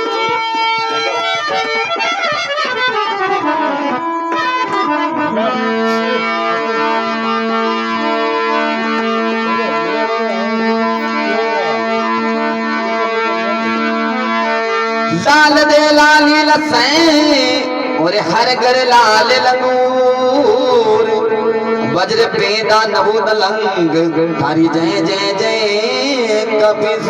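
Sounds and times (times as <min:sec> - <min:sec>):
reedy keyboard instrument music: 0:00.0 - 0:27.0.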